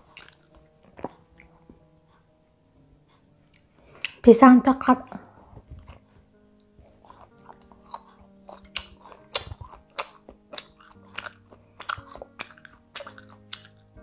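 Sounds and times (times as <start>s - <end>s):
chewing with mouth clicks: 0.0s - 1.8s, 3.4s - 4.2s, 6.8s - 13.9s.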